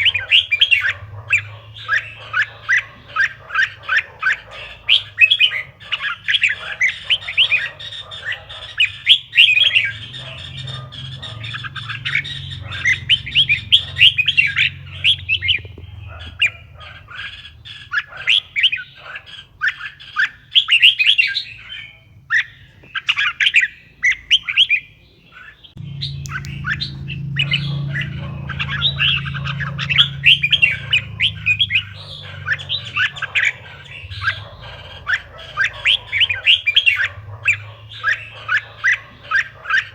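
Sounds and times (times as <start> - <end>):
low steady hum: 25.8 - 38.1
bulbul song: 25.8 - 39.9.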